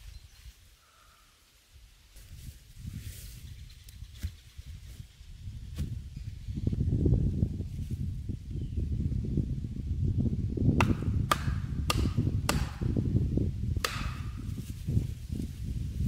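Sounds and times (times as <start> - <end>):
tool striking wood: 10.8 - 13.0, 13.8 - 14.4.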